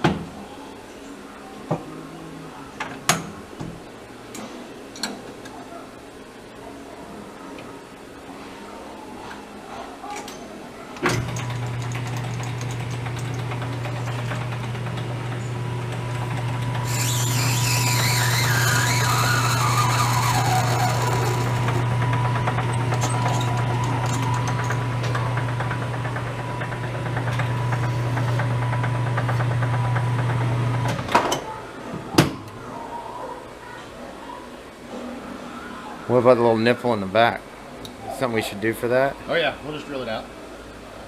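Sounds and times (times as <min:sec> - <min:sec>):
lathe motor hum: 0:12.7 - 0:29.6
cutting tool whistling on brass: 0:16.9 - 0:21.8.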